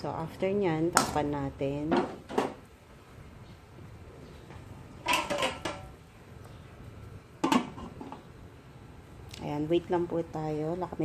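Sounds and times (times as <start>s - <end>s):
low steady background noise: 0.0s - 11.0s
metal cookware clattering: 5.0s - 6.0s, 7.4s - 8.2s.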